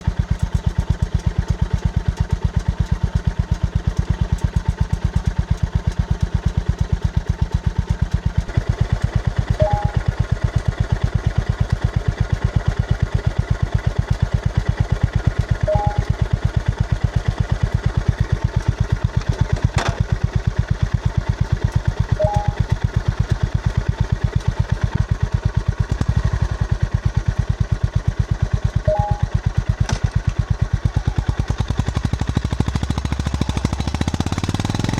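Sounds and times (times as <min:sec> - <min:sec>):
motorcycle engine idling: 0:00.0 - 0:34.9
two-note chirp: 0:09.6 - 0:10.2, 0:15.7 - 0:16.2, 0:22.2 - 0:22.7, 0:28.9 - 0:29.4.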